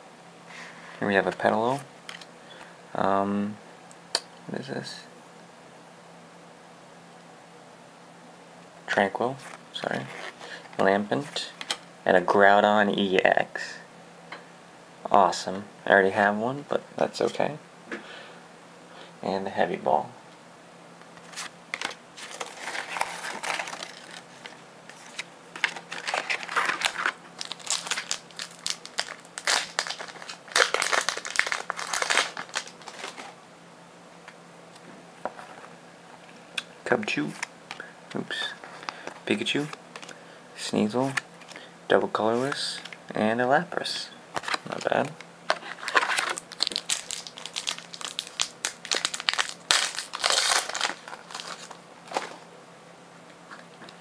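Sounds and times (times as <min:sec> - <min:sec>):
plastic wrapper crinkling and tearing: 0:21.3 - 0:33.3, 0:45.5 - 0:52.4.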